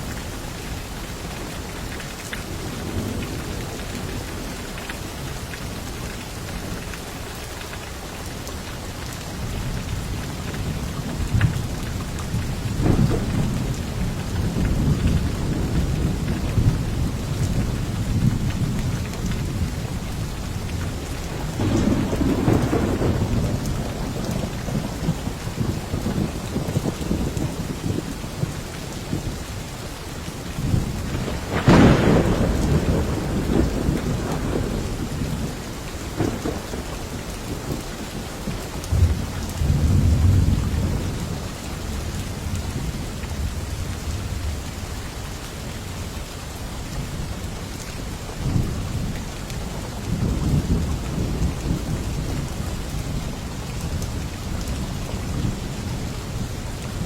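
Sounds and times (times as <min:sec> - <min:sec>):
heavy rain: 0:00.0 - 0:57.0
thunder rumbling: 0:09.6 - 0:29.4, 0:30.6 - 0:44.7.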